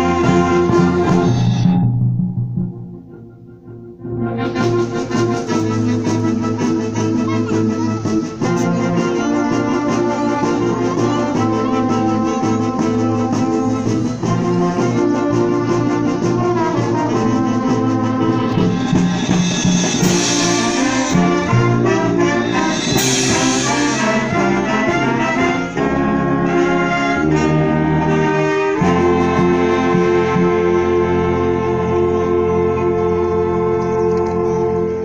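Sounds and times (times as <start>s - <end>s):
wind band playing chords: 0.0s - 35.0s
cymbal crashes: 18.6s - 24.4s.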